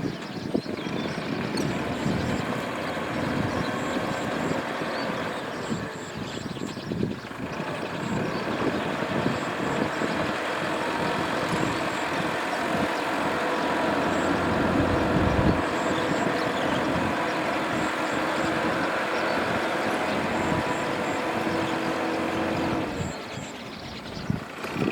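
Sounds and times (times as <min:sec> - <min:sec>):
tractor engine running under load: 0:00.0 - 0:24.9.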